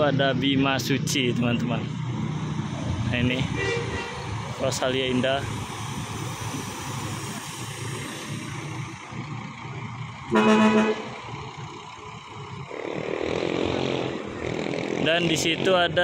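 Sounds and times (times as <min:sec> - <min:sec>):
bus engines rumbling: 0:00.0 - 0:16.0
bus horn honk: 0:03.5 - 0:04.3, 0:10.3 - 0:11.2.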